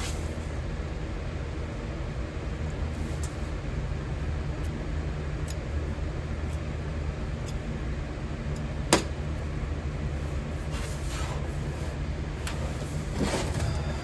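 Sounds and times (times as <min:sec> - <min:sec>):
furnace rumbling: 0:07.8 - 0:14.0.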